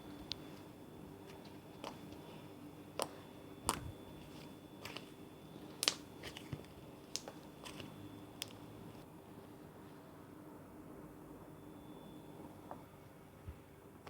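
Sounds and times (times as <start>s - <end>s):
slime clicking and popping: 5.8s - 6.5s, 7.1s - 8.6s.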